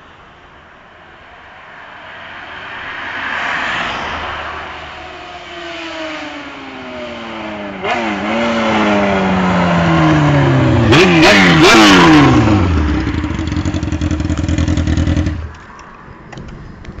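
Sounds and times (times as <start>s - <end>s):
motorcycle engine revving and idling: 7.8s - 15.6s.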